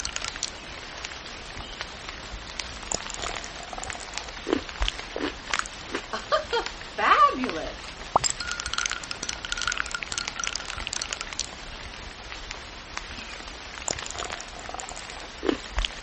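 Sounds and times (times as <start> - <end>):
crunchy eating: 2.6 - 6.1, 13.8 - 16.0.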